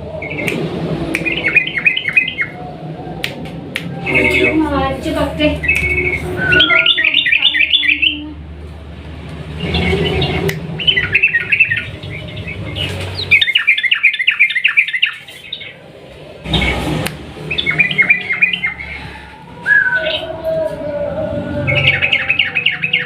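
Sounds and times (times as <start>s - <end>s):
bird singing chattering notes: 1.2s - 2.6s, 5.5s - 8.2s, 9.6s - 15.8s.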